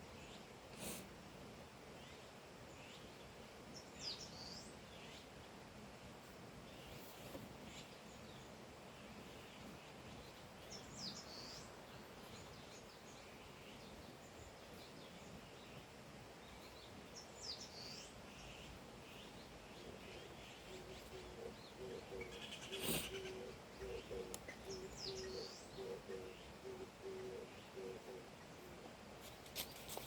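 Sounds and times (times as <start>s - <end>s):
steady outdoor hiss: 0.0s - 30.0s
soft bird chirps: 6.6s - 30.0s
birds calling: 16.5s - 30.0s.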